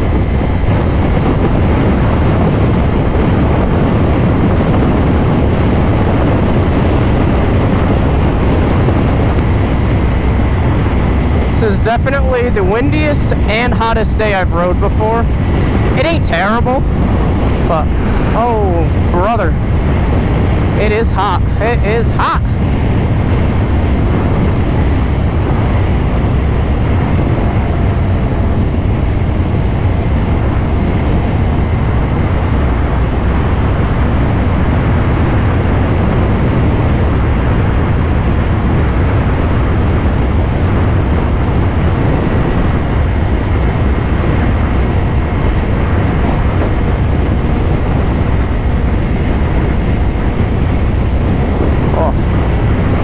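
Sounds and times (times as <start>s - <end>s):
wind buffeting microphone: 0.0s - 53.0s
motorcycle engine running: 14.8s - 53.0s.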